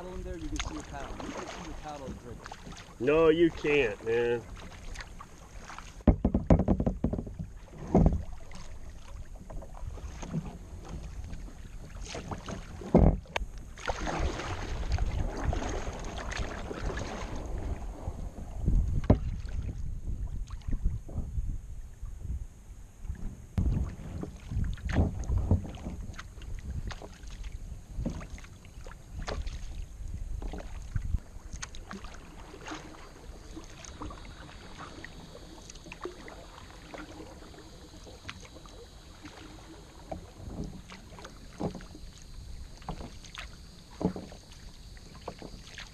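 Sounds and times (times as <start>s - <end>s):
paddle swishing through water: 0.0s - 22.4s, 23.0s - 45.9s
sharp knocks: 6.0s - 8.2s
wind buffeting microphone: 13.4s - 28.4s.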